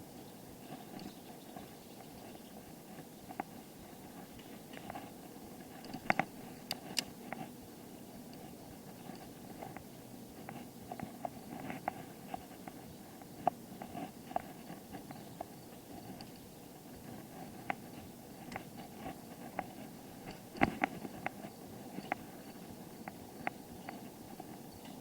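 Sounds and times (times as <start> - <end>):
bicycle clicks and rattles: 2.0 - 7.5, 13.4 - 25.0.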